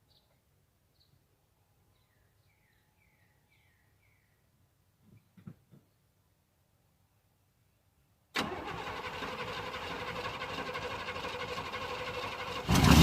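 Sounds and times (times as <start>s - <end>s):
engine firing up: 8.4s - 13.0s
starter motor cranking: 8.4s - 13.0s.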